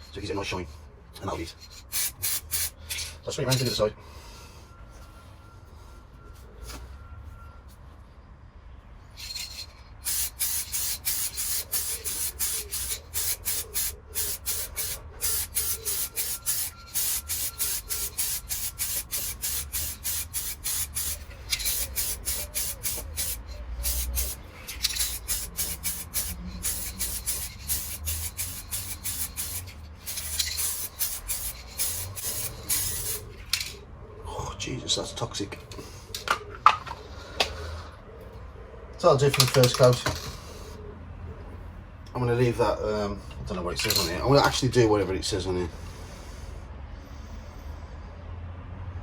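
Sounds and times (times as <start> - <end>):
aerosol can spraying bursts: 1.9 - 2.8, 9.5 - 33.3.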